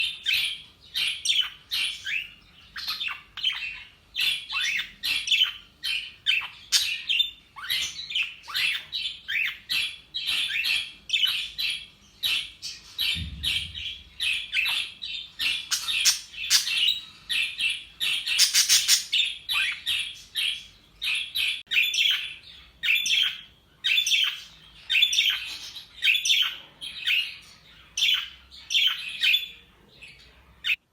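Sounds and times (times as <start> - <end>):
budgerigars chirping: 0.0 - 30.8
low thump: 13.1 - 14.1.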